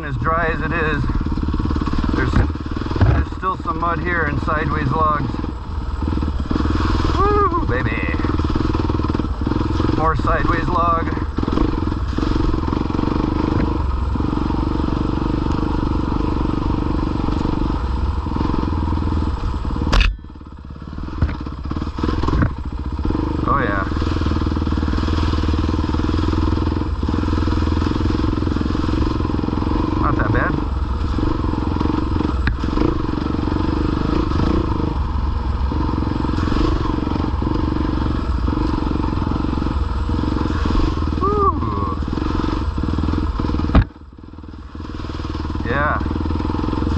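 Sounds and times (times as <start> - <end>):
dirt bike engine chugging: 0.0 - 46.9.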